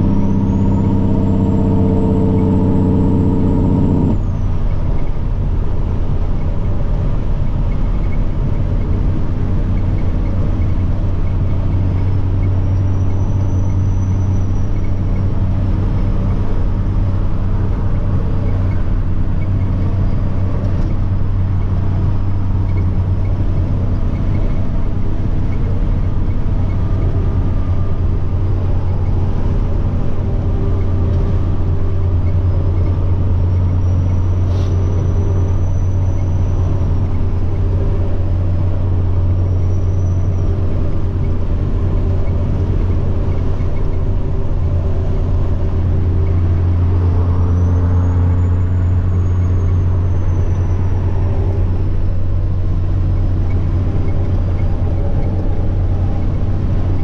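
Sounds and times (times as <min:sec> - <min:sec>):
faint turbo whine: 0:00.0 - 0:57.0
truck diesel engine drone: 0:00.0 - 0:57.0.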